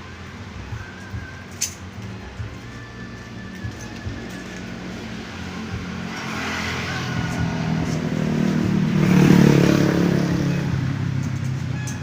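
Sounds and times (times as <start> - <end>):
vehicle engine driving past: 3.6 - 11.4.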